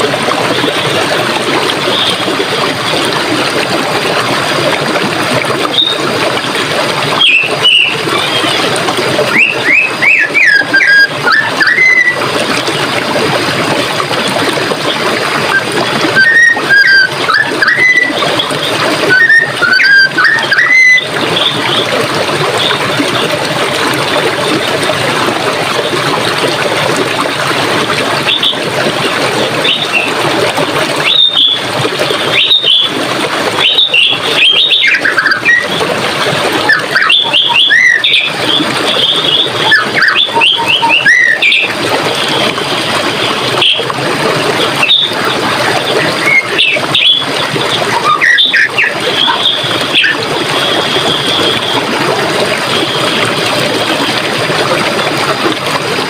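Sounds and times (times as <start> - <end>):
forest stream rushing: 0.0 - 56.0
songbirds calling: 36.7 - 41.8, 44.8 - 45.2, 46.1 - 51.8.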